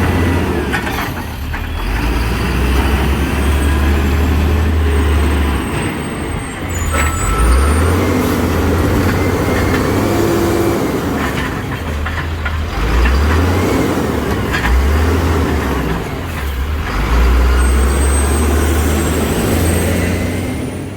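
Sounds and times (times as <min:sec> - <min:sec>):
garbage truck engine rumble: 0:00.0 - 0:20.9
sharp knocks and clanks: 0:06.9 - 0:16.7.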